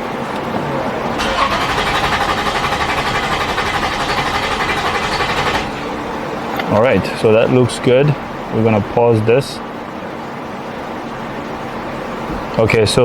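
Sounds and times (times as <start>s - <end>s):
engine starter cranking: 1.2s - 6.7s.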